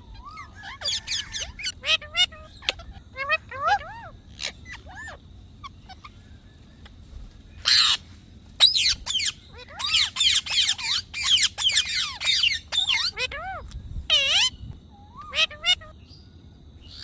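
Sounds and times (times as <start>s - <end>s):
parrot screeching: 0.0s - 6.2s, 7.6s - 8.0s, 8.6s - 15.9s.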